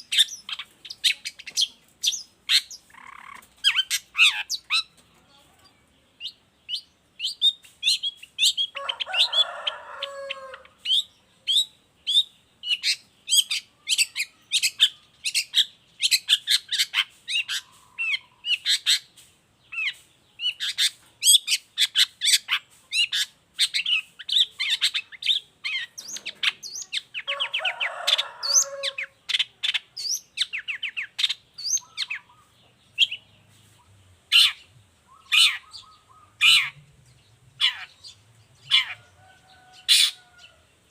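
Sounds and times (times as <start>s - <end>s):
bird harsh rasping chatter: 0.0s - 5.0s, 12.7s - 36.9s, 37.6s - 40.4s.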